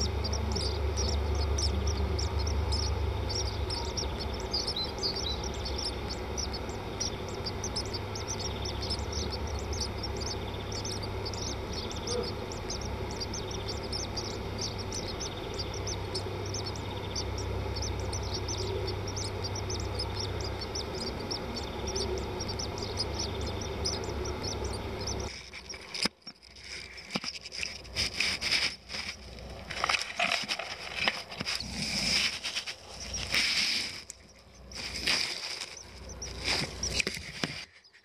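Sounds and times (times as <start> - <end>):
small birds chirping: 0.0 - 38.0
steady low hum: 0.0 - 38.0
rustling: 25.2 - 38.0.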